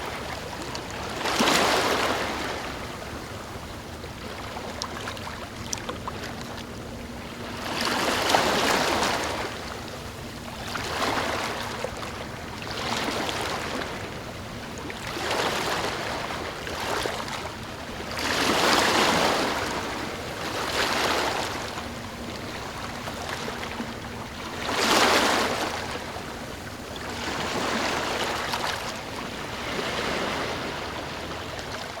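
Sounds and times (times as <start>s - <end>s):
ocean waves washing in: 18.1s - 32.0s.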